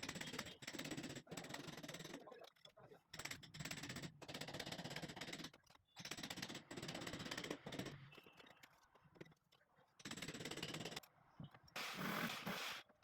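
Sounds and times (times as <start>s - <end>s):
drill rattling into masonry: 11.8s - 12.8s.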